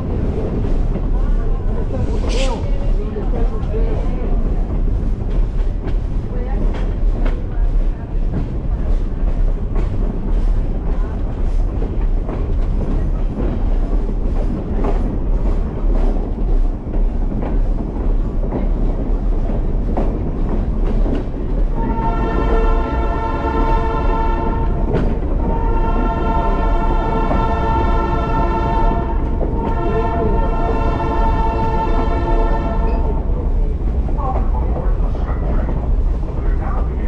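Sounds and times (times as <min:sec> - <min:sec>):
train cars rumbling: 0:00.0 - 0:37.0
train horn chord: 0:21.8 - 0:33.0.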